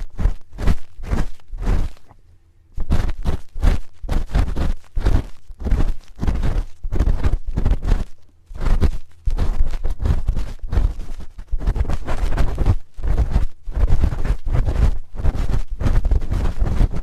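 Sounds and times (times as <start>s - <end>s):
spoon scraping on microphone: 0.0s - 2.2s.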